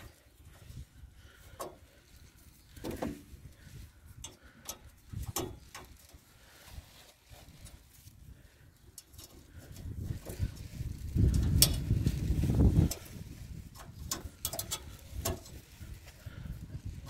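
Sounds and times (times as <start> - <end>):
knocks and clicks of machine parts: 4.2 - 5.9.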